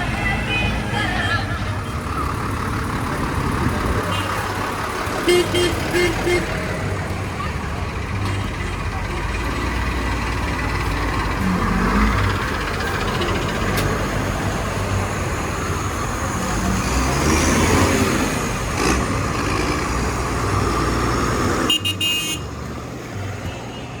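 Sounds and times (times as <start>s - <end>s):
tractor engines running: 0.0s - 24.0s.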